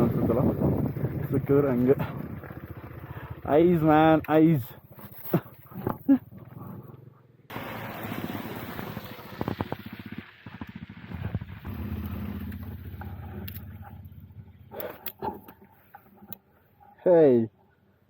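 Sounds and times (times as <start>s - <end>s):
wind noise: 0.0s - 2.6s
motorcycle engine running: 0.0s - 15.7s.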